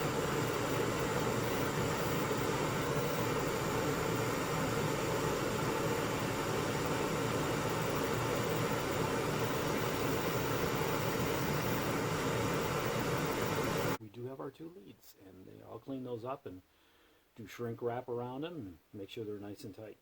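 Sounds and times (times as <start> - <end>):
gas torch hissing: 0.0 - 14.0.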